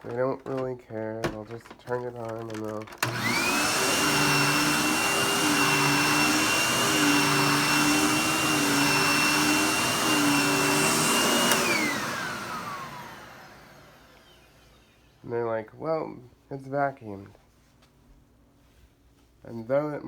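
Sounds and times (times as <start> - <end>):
vacuum cleaner on carpet: 1.2 - 15.0
vacuum motor winding down: 2.3 - 15.0.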